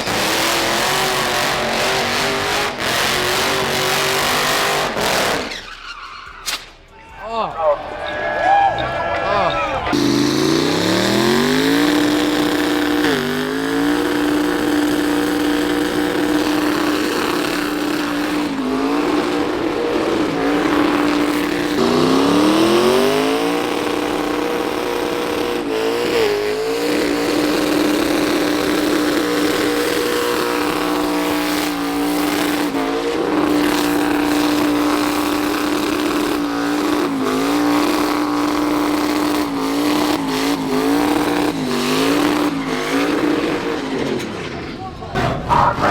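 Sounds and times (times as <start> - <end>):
truck engine revving: 0.0 - 5.9, 8.8 - 45.9.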